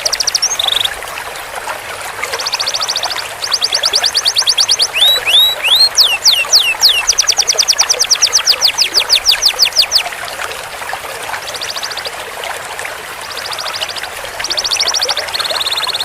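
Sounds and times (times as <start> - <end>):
canary singing: 0.0 - 0.9, 2.6 - 10.1.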